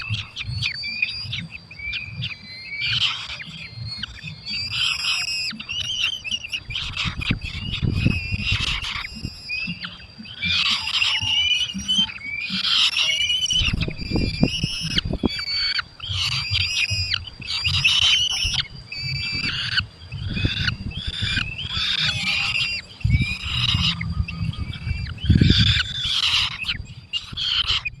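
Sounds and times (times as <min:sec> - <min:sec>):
falcons calling shrilly: 0:00.0 - 0:28.0
low rumbling bumps: 0:13.5 - 0:28.0.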